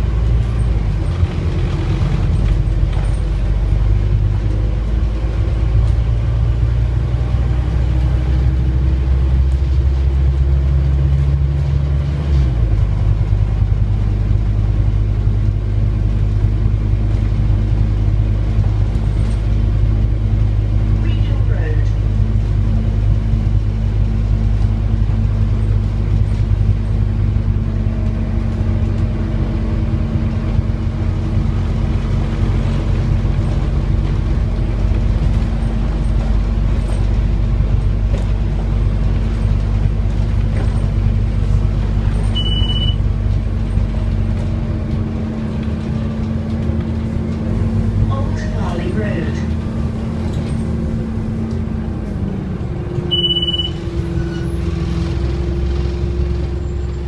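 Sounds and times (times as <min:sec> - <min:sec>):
bus engine rumbling: 0:00.0 - 0:57.0
short high beep: 0:42.4 - 0:43.0, 0:53.1 - 0:53.8.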